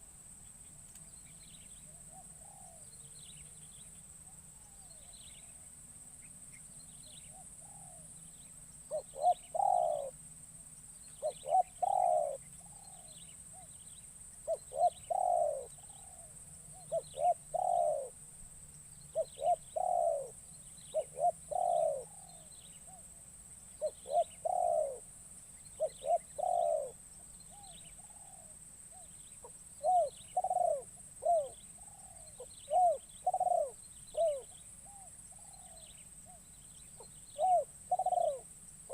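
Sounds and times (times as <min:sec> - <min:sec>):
dove cooing: 0:01.9 - 0:02.9, 0:07.3 - 0:08.0, 0:08.9 - 0:10.2, 0:11.2 - 0:13.7, 0:14.4 - 0:18.2, 0:19.1 - 0:23.0, 0:23.8 - 0:25.1, 0:25.7 - 0:36.4, 0:37.0 - 0:38.9.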